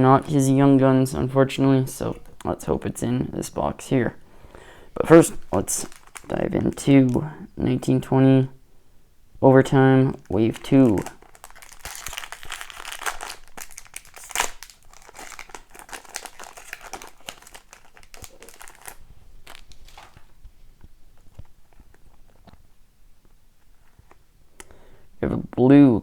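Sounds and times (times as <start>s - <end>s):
wrapper tearing and crinkling: 5.4s - 7.2s, 10.2s - 20.4s.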